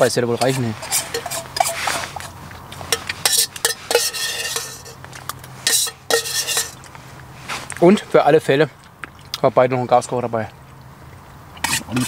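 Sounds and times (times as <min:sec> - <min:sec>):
spoon scraping metal cookware: 0:00.0 - 0:06.9, 0:11.6 - 0:12.0.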